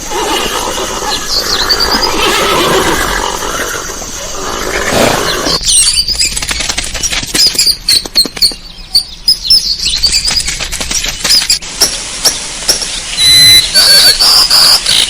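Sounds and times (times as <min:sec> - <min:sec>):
wings fluttering: 0:00.0 - 0:08.7, 0:09.8 - 0:11.6
small birds chirping: 0:00.6 - 0:15.0.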